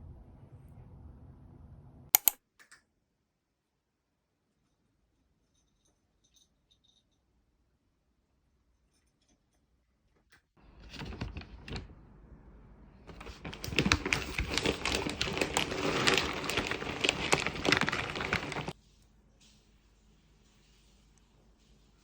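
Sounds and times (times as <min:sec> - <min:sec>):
rapid irregular clicking and tapping: 0:13.1 - 0:18.8.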